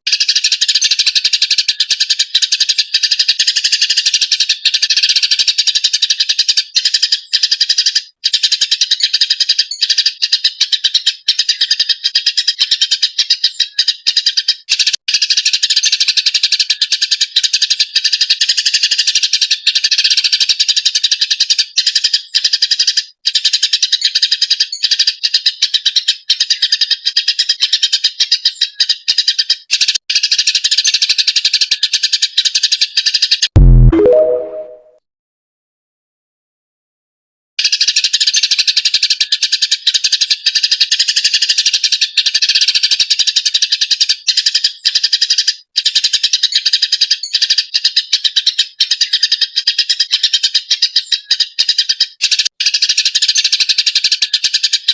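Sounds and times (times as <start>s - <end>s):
sparrow chirping: 0.1s - 33.4s, 37.6s - 54.9s.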